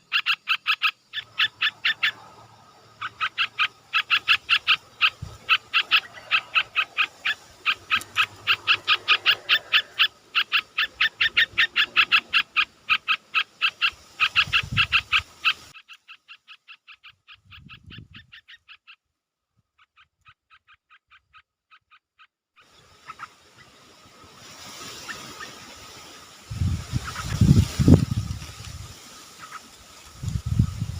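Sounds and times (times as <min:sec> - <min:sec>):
animal chirping rapidly: 0:00.0 - 0:19.0, 0:19.8 - 0:22.4, 0:26.9 - 0:28.0.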